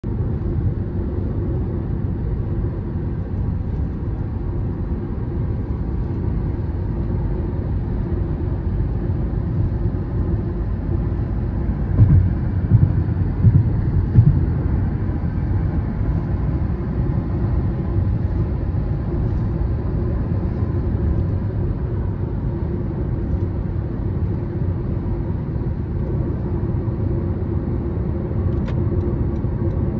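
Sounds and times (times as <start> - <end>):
car engine and road rumble: 0.0 - 29.9
low thumps: 11.8 - 15.0.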